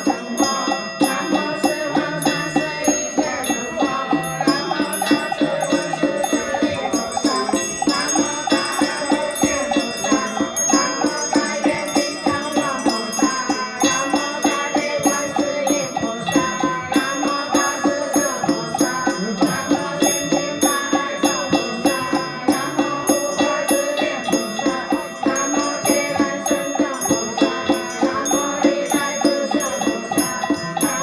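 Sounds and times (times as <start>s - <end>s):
bells and chimes ringing: 0.0s - 31.0s
steady beat: 0.0s - 31.0s.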